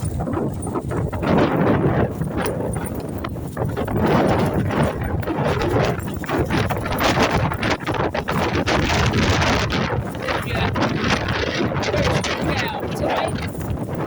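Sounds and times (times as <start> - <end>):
wind gusts buffeting microphone: 0.0 - 14.0.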